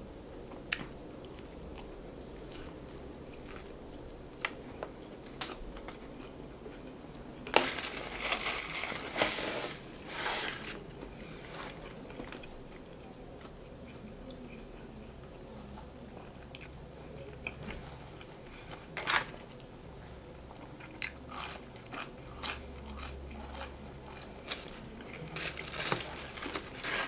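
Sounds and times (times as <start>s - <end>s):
crunchy chewing: 20.5s - 27.0s.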